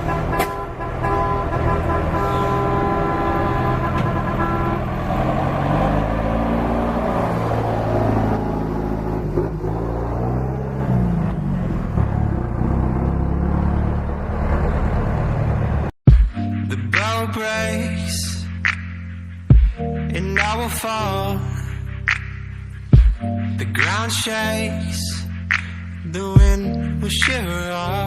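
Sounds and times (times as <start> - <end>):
multi-note truck horn: 0.0 - 6.6
heavy truck engine revving: 0.0 - 16.0.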